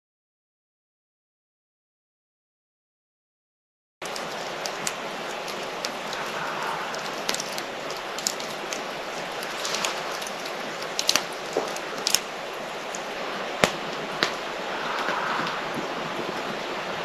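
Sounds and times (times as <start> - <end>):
campfire crackling and popping: 4.0 - 17.0.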